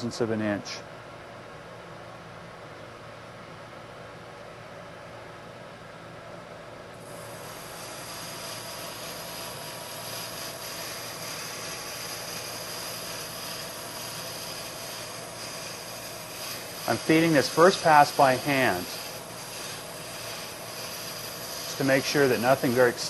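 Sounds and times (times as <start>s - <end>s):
faint high whine: 7.0s - 23.0s
metal lathe cutting: 7.1s - 23.0s.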